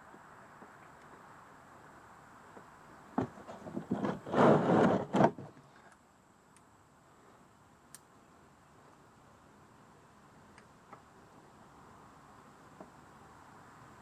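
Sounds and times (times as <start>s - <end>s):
rustling scrape: 3.2s - 5.9s.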